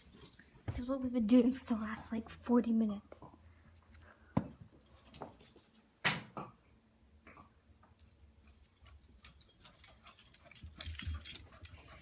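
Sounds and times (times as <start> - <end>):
light jingling and clicks: 0.0 - 1.2, 4.6 - 6.0, 7.3 - 12.0.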